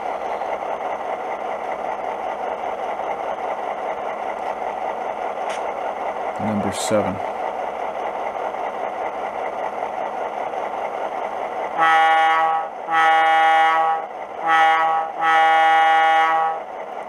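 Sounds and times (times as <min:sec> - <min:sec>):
model diesel locomotive idling: 0:00.0 - 0:17.0
locomotive air horn blasts: 0:11.8 - 0:16.6.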